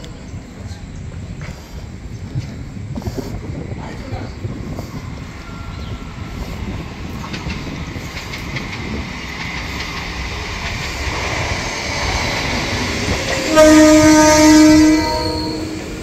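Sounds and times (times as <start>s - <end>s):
train rumble and wheel noise: 0.0s - 16.0s
loud train horn: 13.4s - 16.0s.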